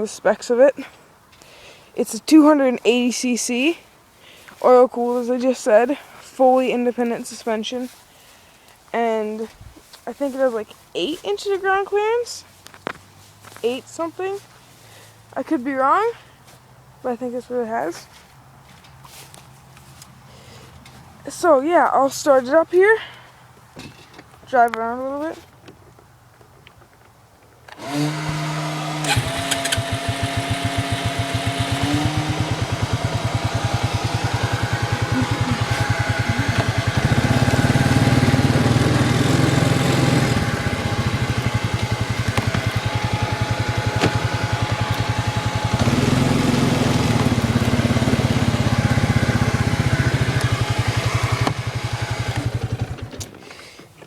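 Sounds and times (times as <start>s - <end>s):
electric starter whining: 27.7s - 53.5s
atv engine idling: 27.8s - 53.5s.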